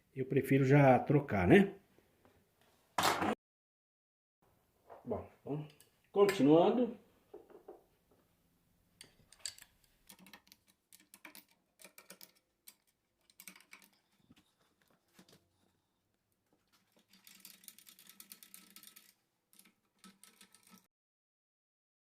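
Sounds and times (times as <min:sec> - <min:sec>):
hand tools and metal parts clicking: 0:09.0 - 0:15.7, 0:16.5 - 0:20.9.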